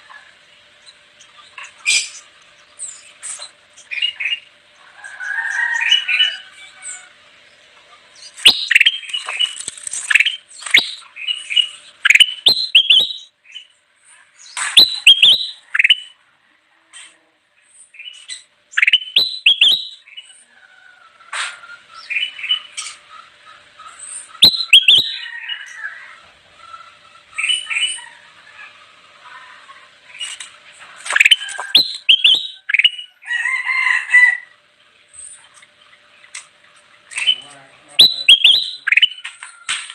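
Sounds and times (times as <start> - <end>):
bulbul chirping: 8.2 - 13.6, 14.6 - 16.2, 18.2 - 20.0, 24.2 - 25.2, 31.1 - 33.2, 37.1 - 39.3.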